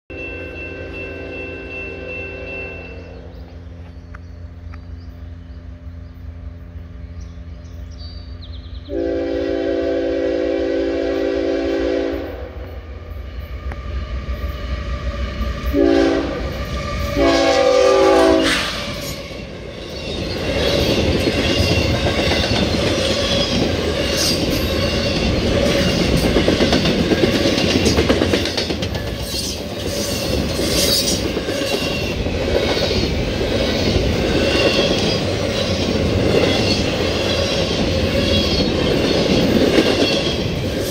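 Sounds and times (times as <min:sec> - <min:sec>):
chime air horn blasts: 0:00.1 - 0:03.2
freight train passing: 0:00.1 - 0:40.9
locomotive engine rumble: 0:00.4 - 0:40.9
wheels clicking over rail joints: 0:18.8 - 0:40.9.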